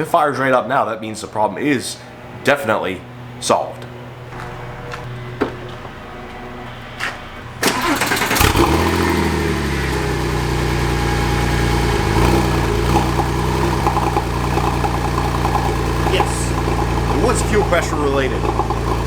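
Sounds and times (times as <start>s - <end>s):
car engine starting and idling: 4.4s - 19.0s.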